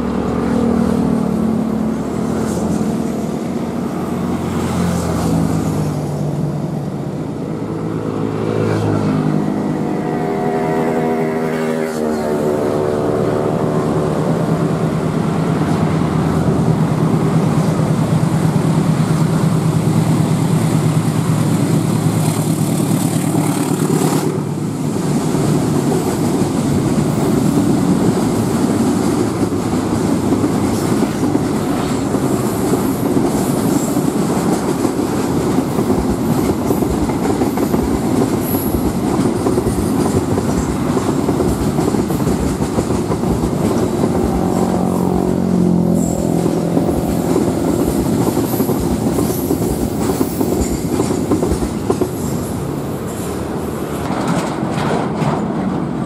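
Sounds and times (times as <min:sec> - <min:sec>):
freight train rumbling past: 0:00.0 - 0:56.0
wheels clacking over rail joints: 0:14.9 - 0:56.0.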